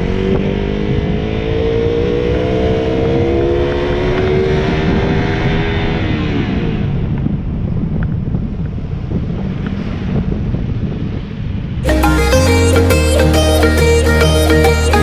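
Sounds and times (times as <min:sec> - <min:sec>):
motorcycle engine accelerating: 0:00.0 - 0:08.5.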